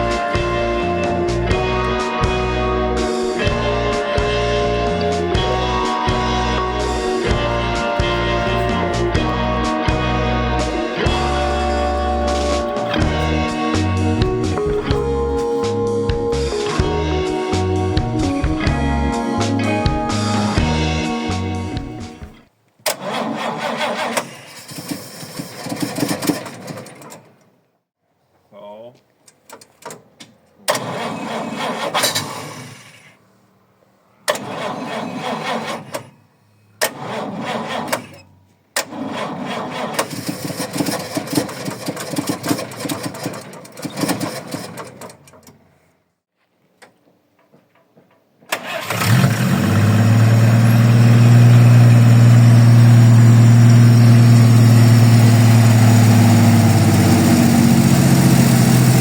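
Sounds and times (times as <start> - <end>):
engine running steadily: 0.0 - 22.4, 49.1 - 59.0
engine cranked by starter: 0.0 - 27.5, 30.7 - 33.2, 34.3 - 36.2, 36.8 - 45.7, 48.5 - 59.0.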